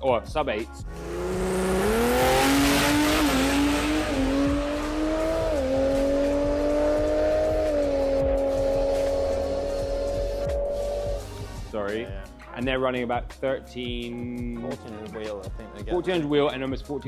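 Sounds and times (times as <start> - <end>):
drag car engine at full throttle: 0.9 - 11.5.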